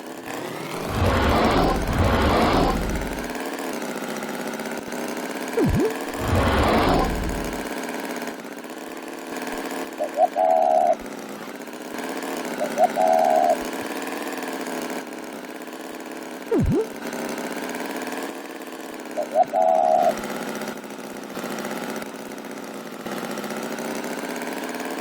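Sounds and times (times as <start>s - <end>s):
engine running: 0.2s - 3.4s, 5.6s - 7.7s, 16.5s - 17.1s
rushing burst: 0.5s - 3.4s, 5.6s - 7.7s
swooping sound effects: 0.7s - 3.4s, 5.6s - 7.7s, 16.5s - 17.0s
short beeping tones: 5.6s - 7.6s, 16.5s - 17.0s.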